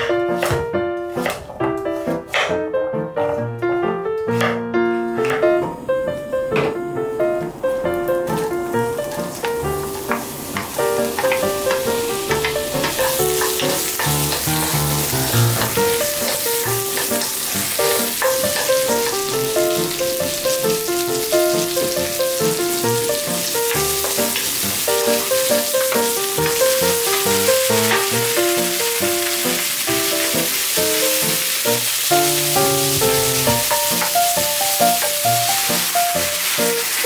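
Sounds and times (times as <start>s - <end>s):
background music melody: 0.0s - 37.0s
vegetables sizzling in a pan: 7.7s - 37.0s.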